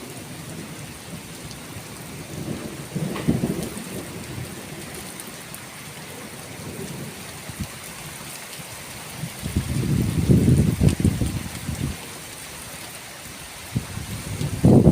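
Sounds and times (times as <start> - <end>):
steady rain: 0.0 - 14.9
rolling thunder: 1.8 - 7.8, 9.2 - 12.0, 13.8 - 14.9.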